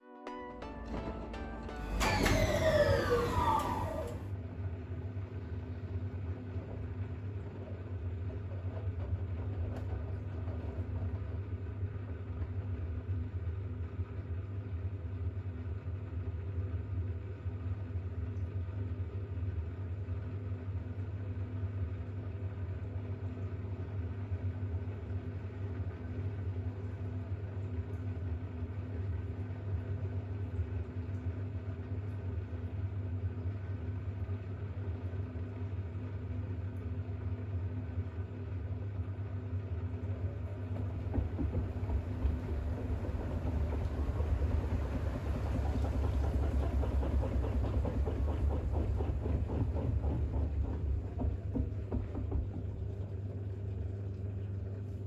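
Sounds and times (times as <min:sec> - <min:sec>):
intro music: 0:00.0 - 0:04.2
washing machine motor hum: 0:00.6 - 0:04.6, 0:22.4 - 0:55.0.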